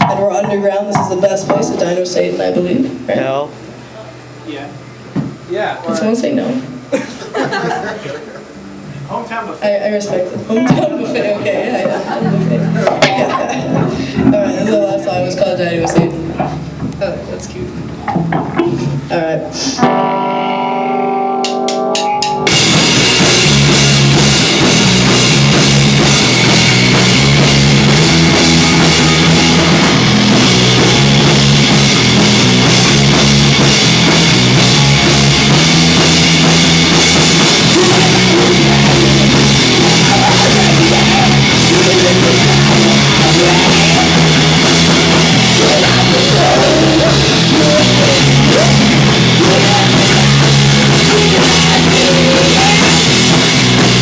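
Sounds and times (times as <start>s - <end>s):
heavy rock band playing: 0.0s - 3.3s, 11.6s - 16.9s, 19.8s - 54.0s.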